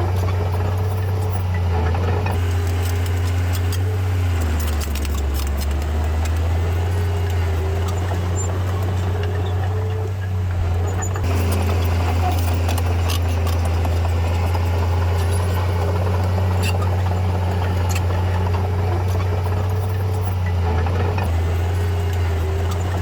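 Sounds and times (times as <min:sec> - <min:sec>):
bulldozer diesel engine running: 0:00.0 - 0:23.0
metallic clinks and rattles: 0:02.4 - 0:08.9.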